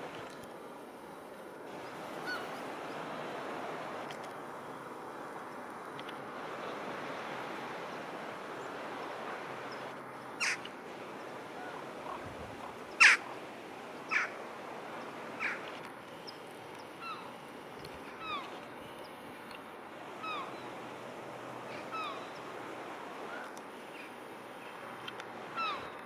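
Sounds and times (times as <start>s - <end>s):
steady hiss: 0.0s - 26.0s
bird cawing harshly: 10.4s - 10.7s, 13.0s - 13.3s.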